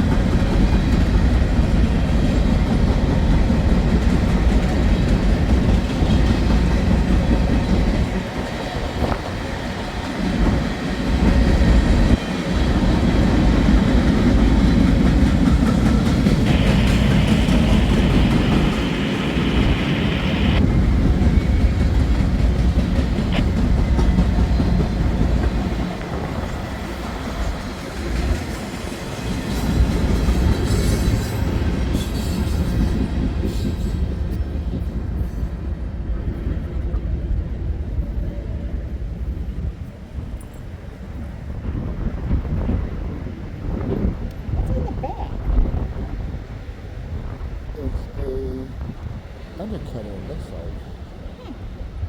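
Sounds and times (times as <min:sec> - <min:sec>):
wheels clacking over rail joints: 0:00.0 - 0:19.2
train wheels rumbling on rails: 0:00.0 - 0:52.0.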